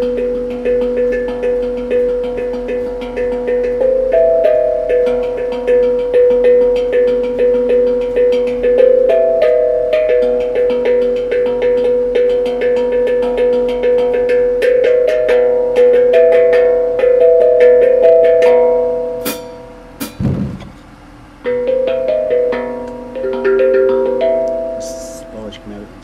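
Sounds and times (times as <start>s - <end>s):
ringing tuned percussion: 0.0s - 25.8s.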